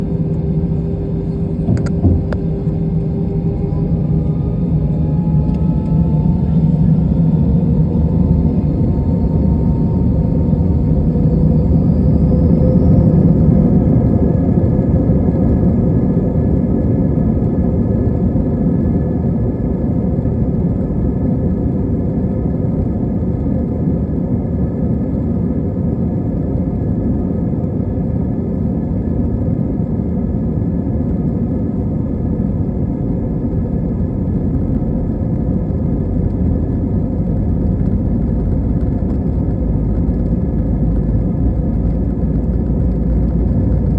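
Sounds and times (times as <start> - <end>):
faint steady whine: 0.0 - 15.5
jet engine cabin rumble: 0.0 - 43.9.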